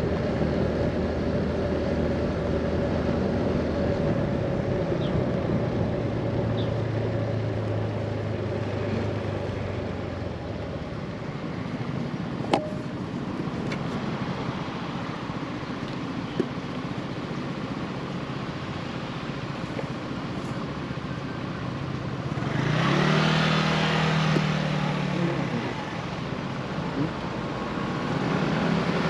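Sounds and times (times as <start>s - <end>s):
road noise: 0.0s - 29.0s
scooter engine humming: 0.0s - 29.0s
wind: 0.0s - 29.0s.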